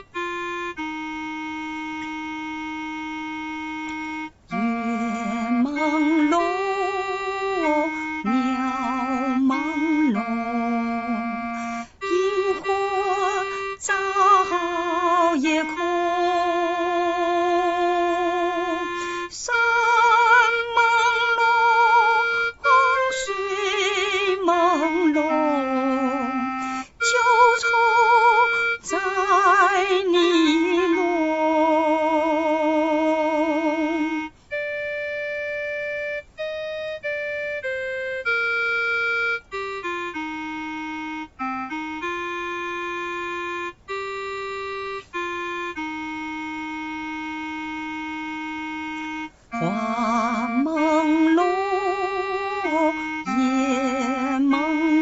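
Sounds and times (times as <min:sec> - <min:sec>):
keyboard single notes: 0:00.0 - 0:55.0
person singing slow song: 0:04.5 - 0:34.6, 0:49.5 - 0:55.0.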